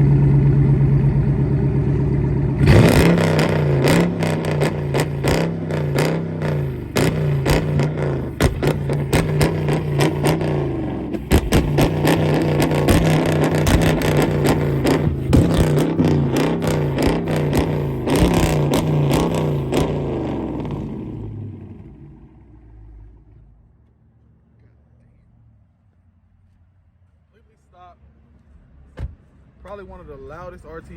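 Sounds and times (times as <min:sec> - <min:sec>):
exhaust crackles: 0:00.0 - 0:23.5
car engine idling and revving: 0:00.0 - 0:30.9.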